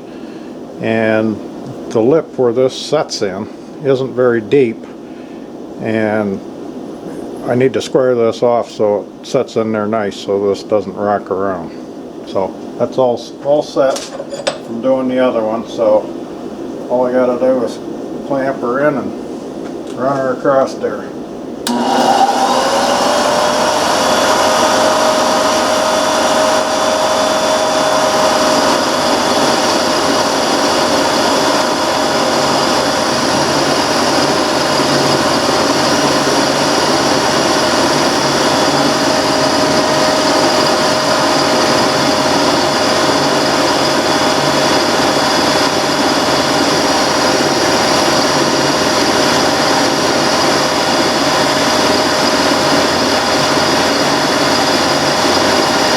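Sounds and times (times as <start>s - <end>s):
mill cutting metal bar: 21.6s - 55.9s
milling machine motor whine: 21.6s - 55.9s.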